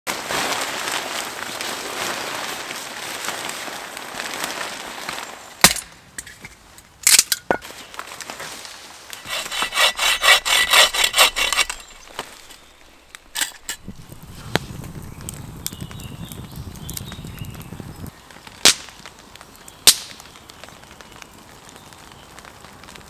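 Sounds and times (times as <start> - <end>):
hand saw cutting wood: 9.2 - 12.7, 13.3 - 14.0
steady hiss: 11.6 - 20.2.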